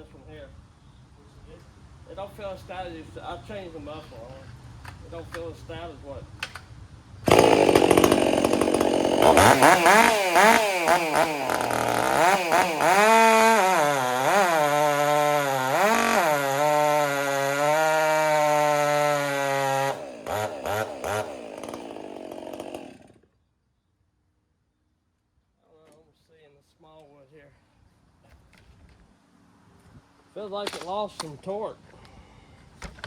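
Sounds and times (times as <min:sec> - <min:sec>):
chainsaw cutting at high revs: 0:07.2 - 0:23.2
chainsaw throttle blips: 0:07.2 - 0:23.2.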